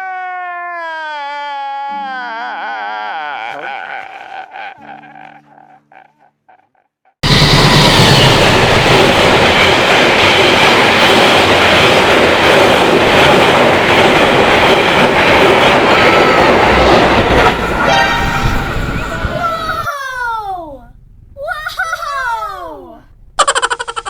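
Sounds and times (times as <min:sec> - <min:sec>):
train rumbling on rails: 0:07.2 - 0:21.4.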